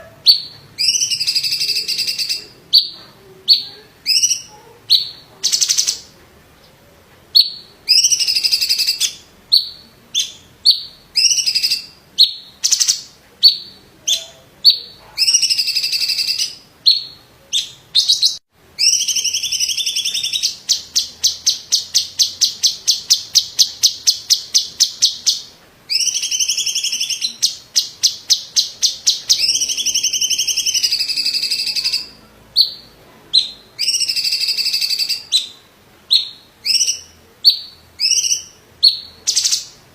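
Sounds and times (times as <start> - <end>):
rapid rattling bird trill: 0.3 - 2.9, 7.4 - 13.7, 14.7 - 17.1, 18.0 - 35.5
bird singing whistled phrases: 0.3 - 6.1, 7.4 - 39.8.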